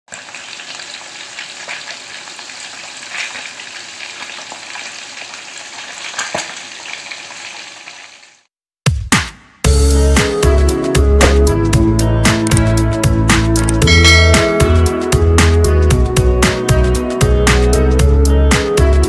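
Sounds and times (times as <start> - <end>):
fish sizzling in oil: 0.1 - 8.5
oil crackling and popping: 0.1 - 8.5.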